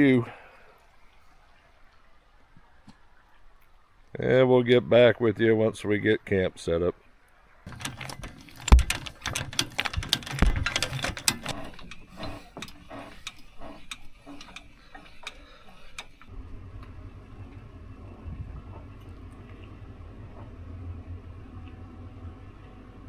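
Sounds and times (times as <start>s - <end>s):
heavy thumps: 7.7s - 16.2s
clatter of sharp clicks and knocks: 7.7s - 16.3s.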